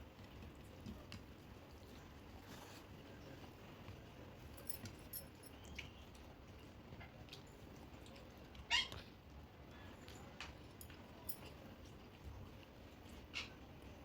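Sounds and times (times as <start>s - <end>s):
soft chewing: 0.1s - 9.1s.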